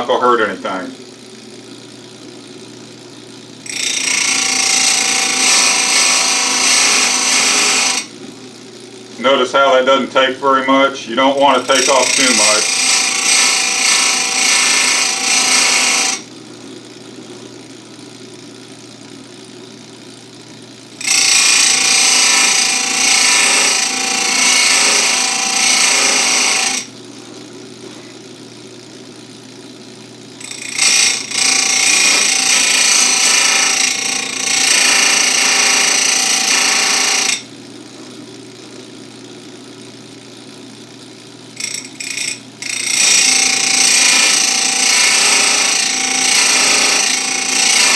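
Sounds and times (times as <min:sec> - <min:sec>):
motor humming: 0:00.0 - 0:47.9
grinding wheel on chain: 0:03.6 - 0:08.1, 0:11.4 - 0:16.2, 0:21.0 - 0:26.9, 0:30.4 - 0:37.4, 0:41.6 - 0:47.9.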